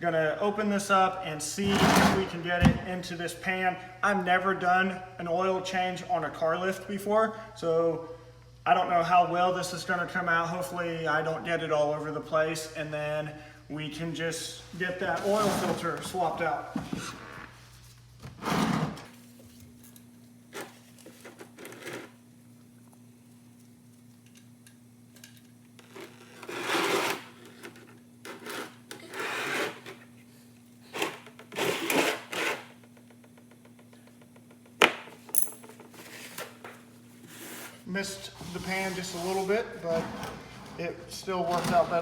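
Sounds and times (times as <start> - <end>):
low electrical hum: 0.0 - 42.0.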